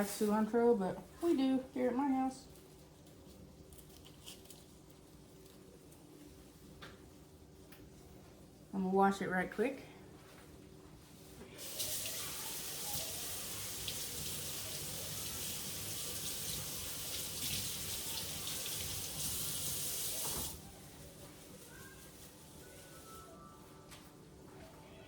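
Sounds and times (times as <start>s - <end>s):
faucet water running: 11.6s - 21.0s.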